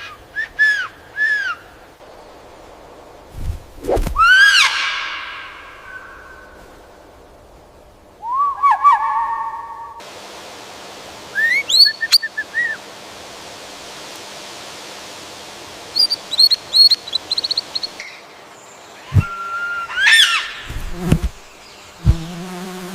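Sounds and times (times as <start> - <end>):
background hiss: 0.0 - 22.9
birds whistling: 11.4 - 12.8, 15.9 - 18.2.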